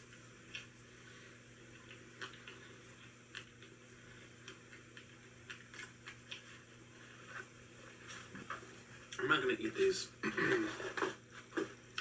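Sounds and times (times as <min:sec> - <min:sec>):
soft clicks of eating: 0:00.0 - 0:00.7, 0:01.6 - 0:06.7
low steady hum: 0:00.0 - 0:12.0.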